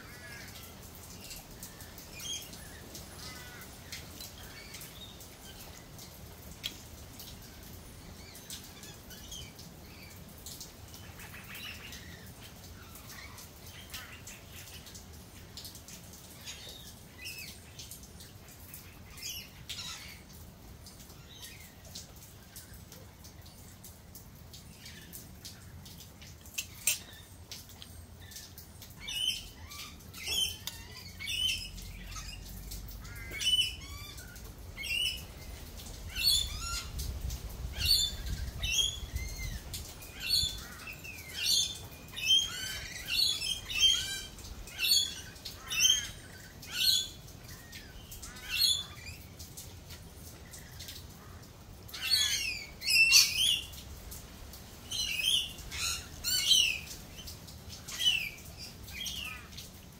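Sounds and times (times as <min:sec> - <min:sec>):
birds chirping and squawking: 0:00.0 - 0:06.1, 0:15.8 - 0:22.0, 0:26.4 - 0:49.4, 0:50.2 - 0:53.8, 0:54.8 - 0:59.7.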